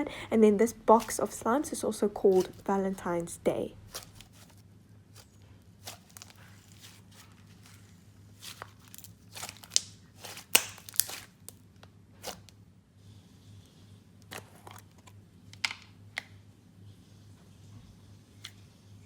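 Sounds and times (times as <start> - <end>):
crackling and crinkling handling: 0.0 - 12.6.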